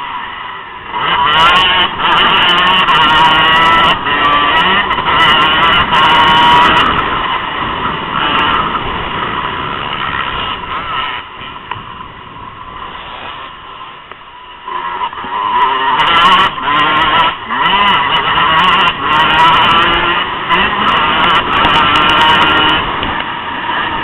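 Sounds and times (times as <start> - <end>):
motocross bike engines revving: 0.0 - 24.0.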